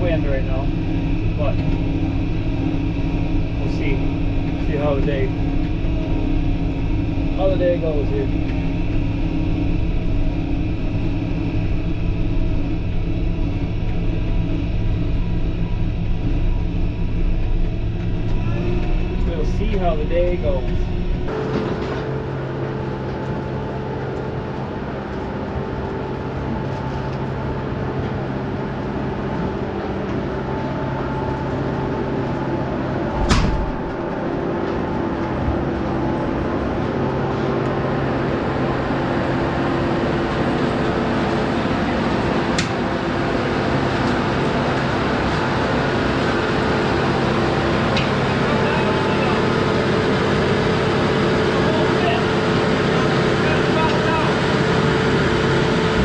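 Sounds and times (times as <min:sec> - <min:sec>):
farm machine engine humming: 0:00.0 - 0:56.0
sharp knock: 0:33.2 - 0:33.9.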